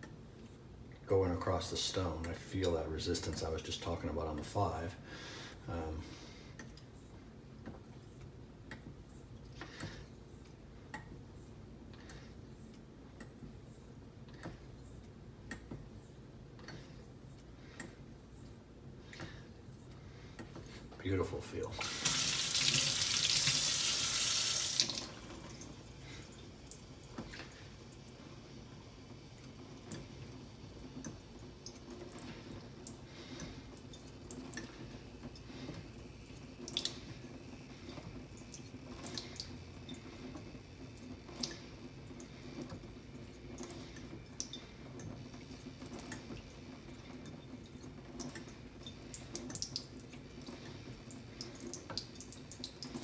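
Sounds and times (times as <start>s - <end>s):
faint drips: 19.0s - 53.0s
tap water running into sink: 21.6s - 33.0s.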